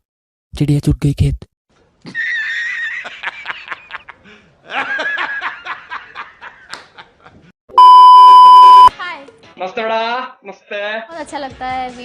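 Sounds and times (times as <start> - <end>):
censor bleep: 7.8 - 8.9.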